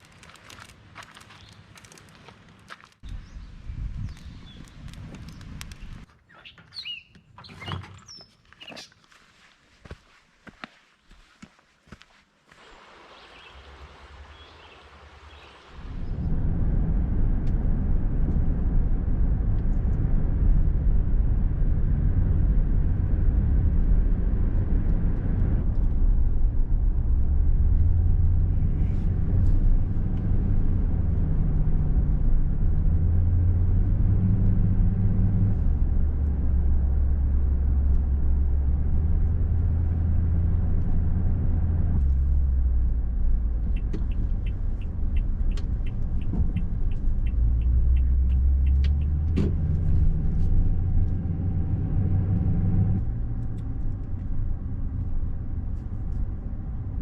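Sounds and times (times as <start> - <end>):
car engine and road noise: 12.5 - 57.0.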